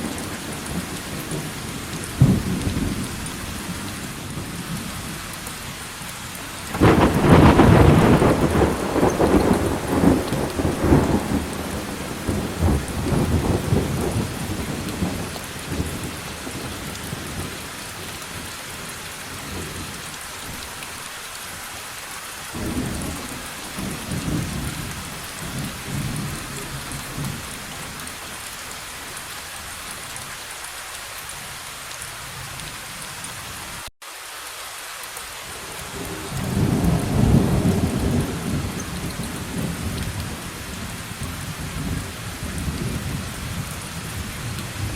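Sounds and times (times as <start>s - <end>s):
steady rain: 0.0s - 44.9s
rolling thunder: 6.7s - 17.6s, 22.5s - 28.0s, 35.9s - 44.9s.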